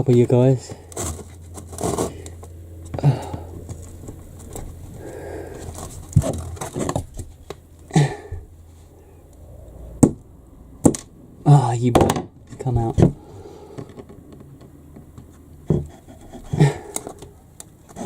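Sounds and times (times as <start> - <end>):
rustling: 0.0 - 9.9.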